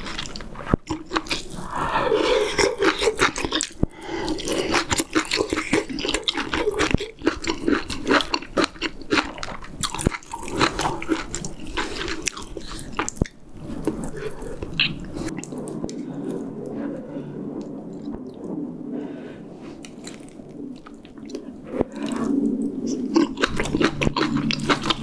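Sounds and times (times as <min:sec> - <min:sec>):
close chewing with wet mouth clicks: 0:00.0 - 0:01.6, 0:02.2 - 0:16.0, 0:22.9 - 0:25.0.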